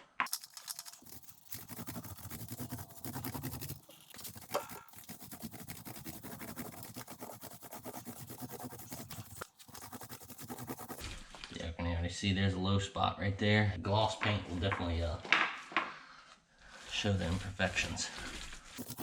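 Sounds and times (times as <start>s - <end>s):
paint roller crackling on wall: 0.2s - 11.1s, 18.8s - 19.0s.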